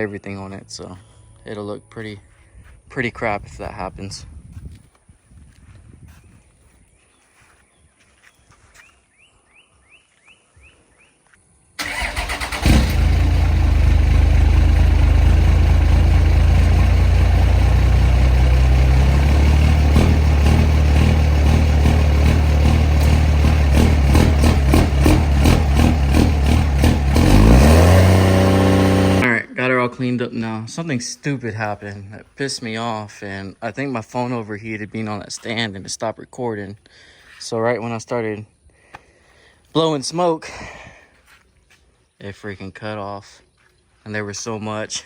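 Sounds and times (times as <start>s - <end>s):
truck engine cranking and starting: 11.8s - 29.3s.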